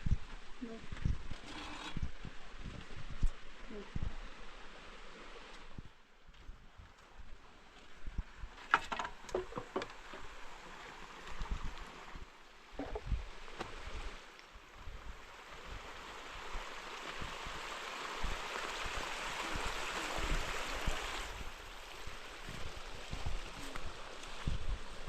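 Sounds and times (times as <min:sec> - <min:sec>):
wind thumps on microphone: 0:00.0 - 0:04.4, 0:11.3 - 0:14.2, 0:16.5 - 0:25.0
rushing water: 0:00.3 - 0:06.1, 0:07.5 - 0:25.0.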